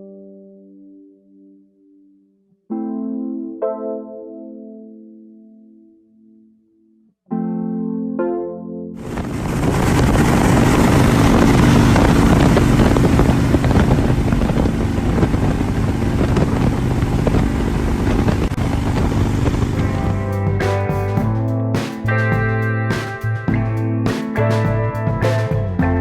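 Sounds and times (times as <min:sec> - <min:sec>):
wind noise on microphone: 0:09.0 - 0:22.6
motorcycle engine running: 0:09.1 - 0:21.5.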